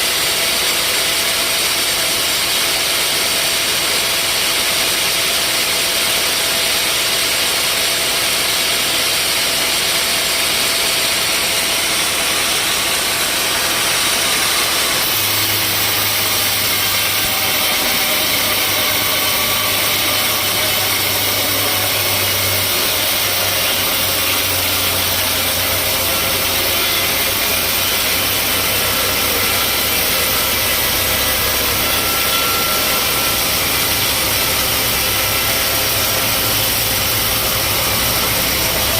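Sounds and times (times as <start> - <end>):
sawmill machinery running: 0.0 - 38.9
low hum: 13.0 - 38.9.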